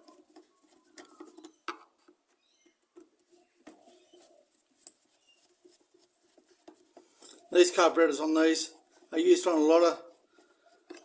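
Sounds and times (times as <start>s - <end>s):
screwdriver clicks and squeaks: 0.1s - 3.1s.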